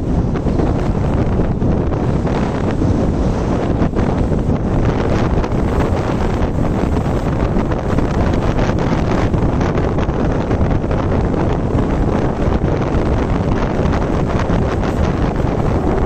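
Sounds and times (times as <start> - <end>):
rough sea rushing: 0.0 - 16.0
wind buffeting microphone: 0.0 - 16.0.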